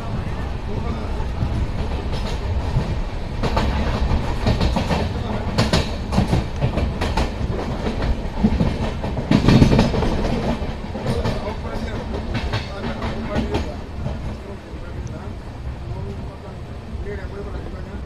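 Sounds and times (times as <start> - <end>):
train wheels rumbling on rail: 0.0 - 18.0
wheels clacking over rail joints: 1.2 - 15.1.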